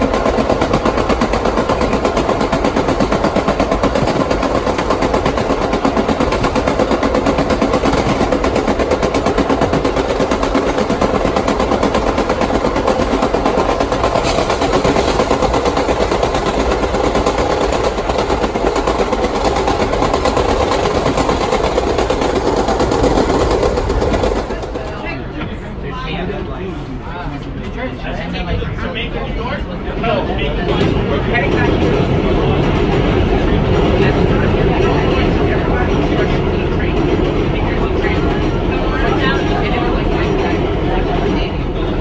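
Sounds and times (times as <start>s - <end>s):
subway car wheels clattering: 0.0s - 25.8s, 28.4s - 42.0s.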